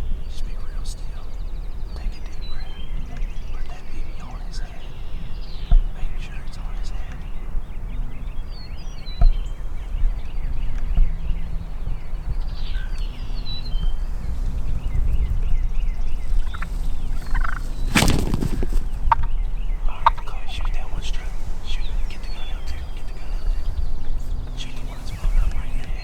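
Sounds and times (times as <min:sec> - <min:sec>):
turkey calls: 0:16.2 - 0:19.3
turkey gobble: 0:16.4 - 0:18.6.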